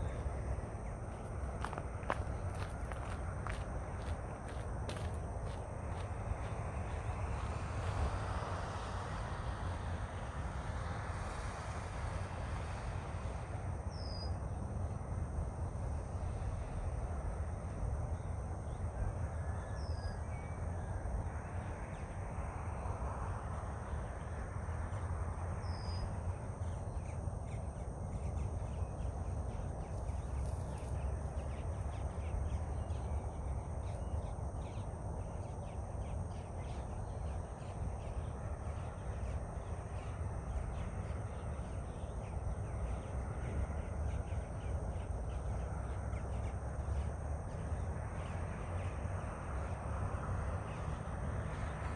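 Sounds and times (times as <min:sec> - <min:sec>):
steady low rumble: 0:00.0 - 0:08.3, 0:20.5 - 0:51.2.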